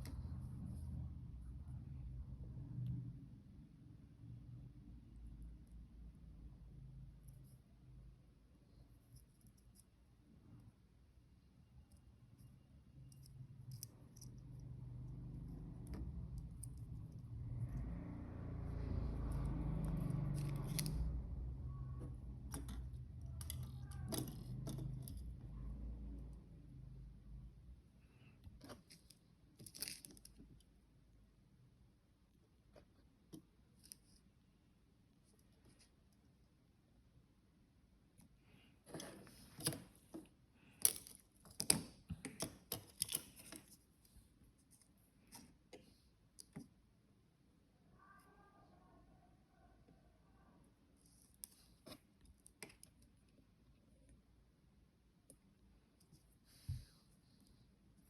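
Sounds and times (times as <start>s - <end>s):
hands handling small objects: 28.4s - 30.8s, 38.5s - 46.8s.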